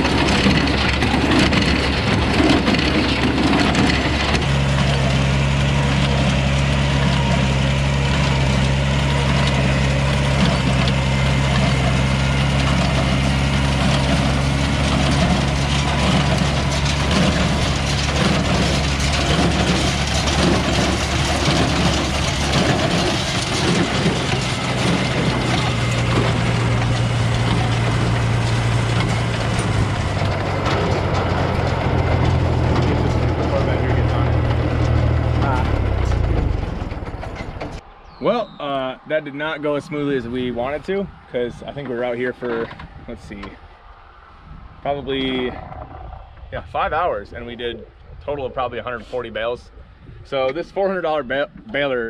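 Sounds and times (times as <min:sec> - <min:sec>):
hay baler clattering: 0:00.0 - 0:38.5
tractor engine running: 0:00.0 - 0:52.0.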